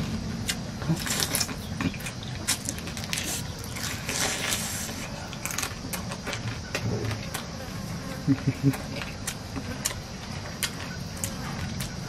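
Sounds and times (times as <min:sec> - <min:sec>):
man chewing crunchy food: 0:00.0 - 0:12.0.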